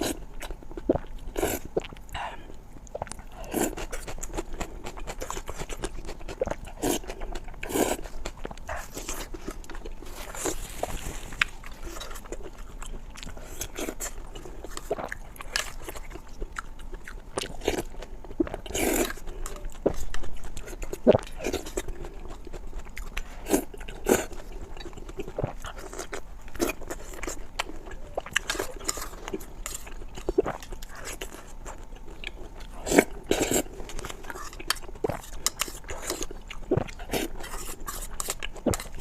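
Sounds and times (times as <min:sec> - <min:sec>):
person chewing food: 0:00.0 - 0:39.0.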